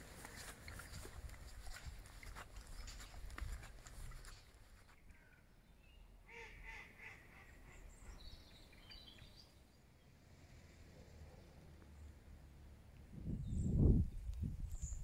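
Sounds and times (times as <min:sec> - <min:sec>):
faint bird calls: 0:02.1 - 0:09.5.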